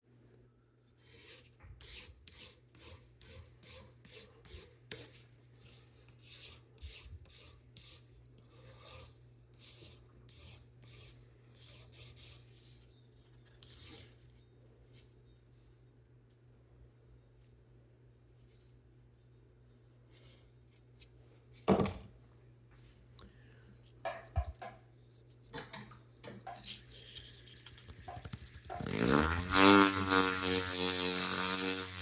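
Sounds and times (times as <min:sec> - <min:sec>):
hand file rasping: 0:01.0 - 0:05.2, 0:27.9 - 0:32.0.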